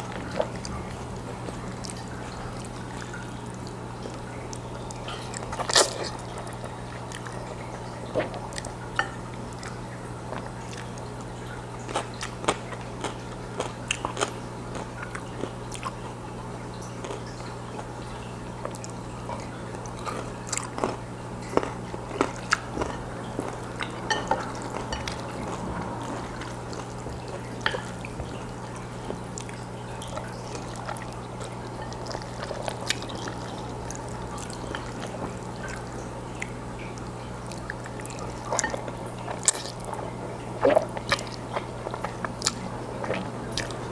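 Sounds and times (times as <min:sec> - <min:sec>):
chewing noodles: 0:00.0 - 0:43.9
low electrical hum: 0:00.0 - 0:43.9.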